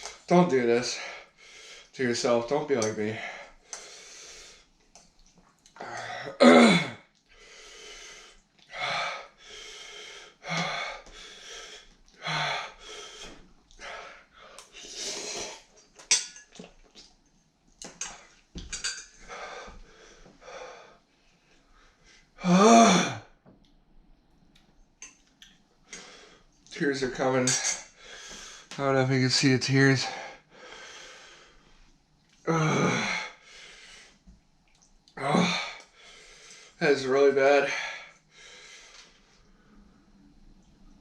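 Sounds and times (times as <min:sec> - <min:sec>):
man breathing hard and wheezing: 0:03.2 - 0:04.7, 0:07.3 - 0:15.7, 0:19.2 - 0:21.1, 0:30.0 - 0:31.7, 0:32.5 - 0:34.2, 0:37.6 - 0:39.2
man groaning: 0:05.8 - 0:07.0, 0:22.4 - 0:23.2, 0:32.5 - 0:33.3, 0:35.2 - 0:35.8.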